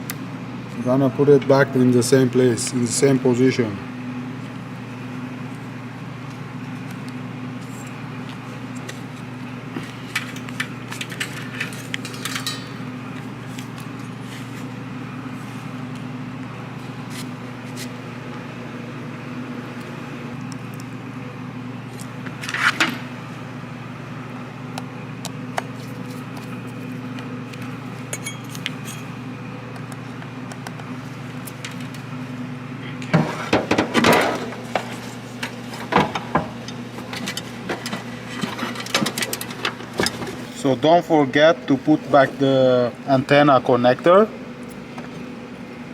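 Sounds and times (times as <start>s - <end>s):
steady low hum: 0.0s - 45.9s
metal parts clinking and rattling: 10.2s - 12.8s.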